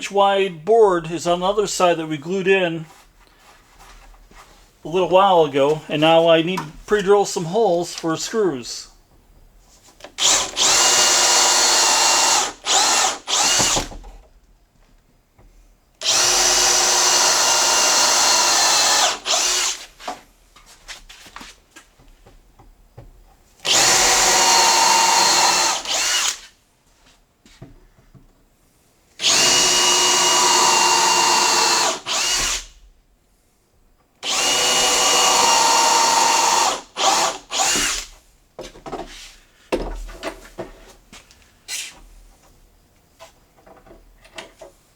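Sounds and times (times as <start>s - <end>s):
electric drill boring into wood: 10.2s - 14.0s, 16.0s - 19.8s, 23.6s - 26.4s, 29.2s - 32.8s, 34.2s - 38.1s.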